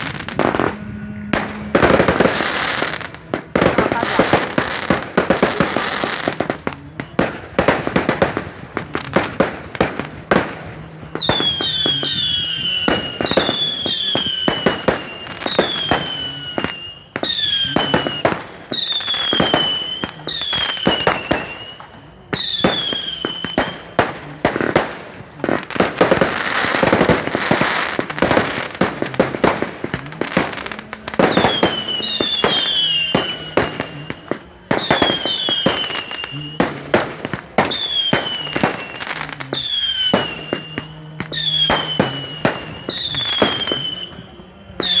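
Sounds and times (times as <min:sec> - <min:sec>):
fireworks bangs and crackles: 0:00.0 - 0:45.0
falling firework whistles: 0:09.2 - 0:25.0, 0:25.7 - 0:45.0.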